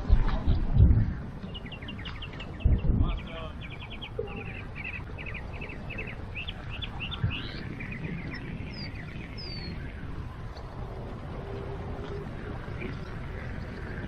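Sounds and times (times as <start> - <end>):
steady low rumble: 0.0 - 14.0
songbirds chirping: 0.4 - 14.0.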